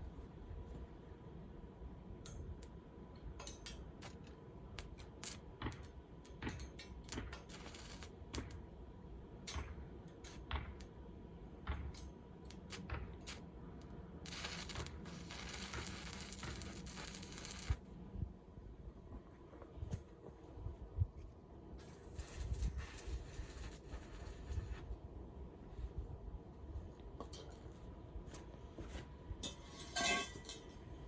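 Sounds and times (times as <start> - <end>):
steady hiss: 2.3 - 11.1, 11.7 - 18.0, 21.8 - 25.0
sharp clicks and knocks: 9.4 - 11.0.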